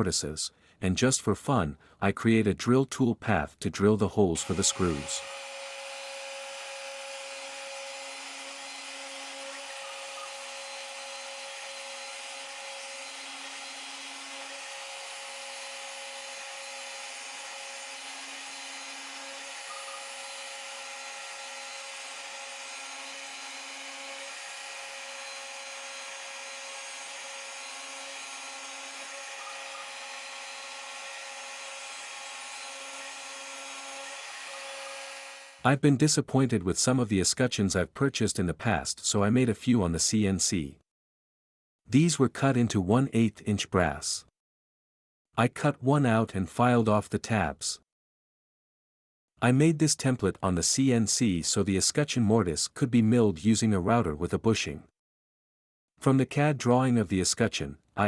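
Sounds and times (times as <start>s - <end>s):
cnc router milling whine: 4.4s - 35.6s.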